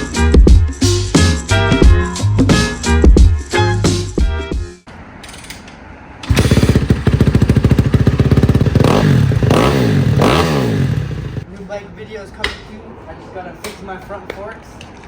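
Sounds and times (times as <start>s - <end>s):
motorcycle engine revving: 6.3s - 11.4s
motorcycle engine running: 6.3s - 11.4s.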